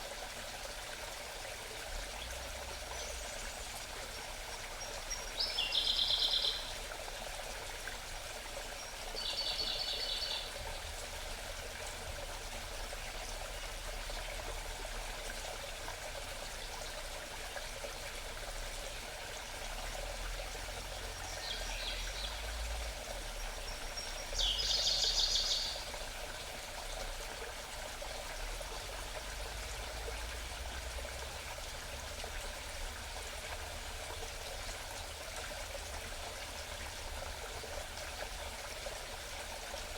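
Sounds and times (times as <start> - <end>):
mountain stream babbling: 0.0 - 39.9
songbird singing: 4.8 - 6.8, 8.8 - 10.6, 21.2 - 25.9.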